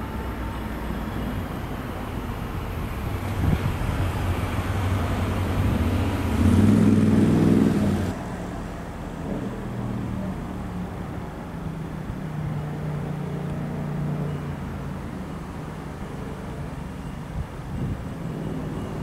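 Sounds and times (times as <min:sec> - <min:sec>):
electric train rumble: 0:00.0 - 0:12.6.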